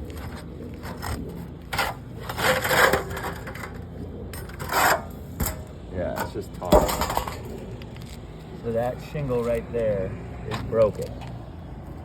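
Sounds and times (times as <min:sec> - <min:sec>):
shingles cracking and tearing: 0:00.0 - 0:03.8.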